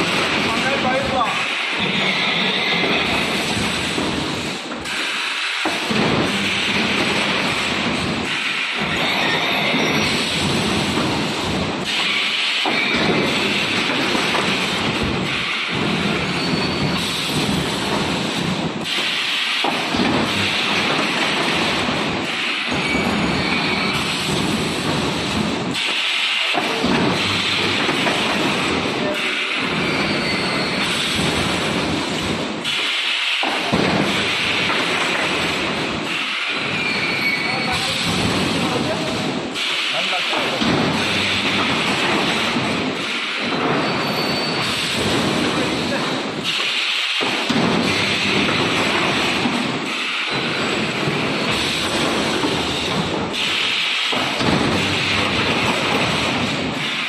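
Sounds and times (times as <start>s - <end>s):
factory machinery running: 0.0s - 57.0s.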